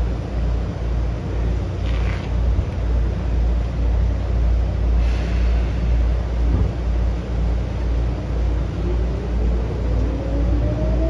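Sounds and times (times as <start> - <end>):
train low rumble: 0.0 - 11.0
train clunk: 5.0 - 7.0
train motor controller whine: 6.2 - 11.0.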